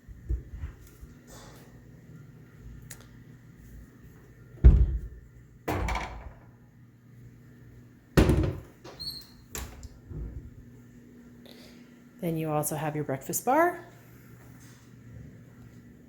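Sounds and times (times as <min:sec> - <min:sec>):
doors opening and shutting: 0:08.2 - 0:10.4.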